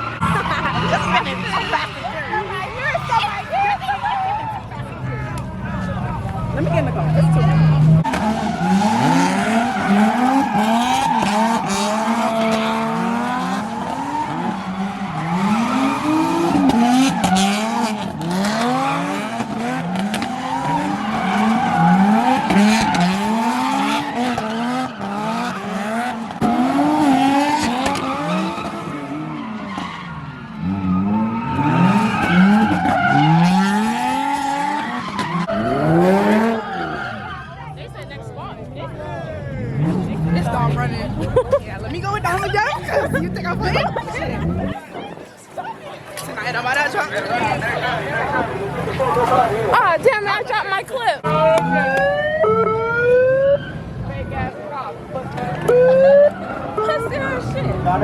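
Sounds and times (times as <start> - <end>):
tires squealing and skidding: 0.0 - 58.0
car engine revving: 4.7 - 45.0.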